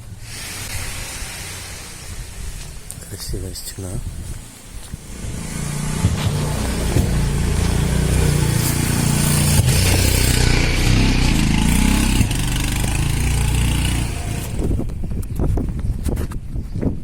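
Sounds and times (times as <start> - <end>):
vehicle engine passing: 5.0 - 14.9.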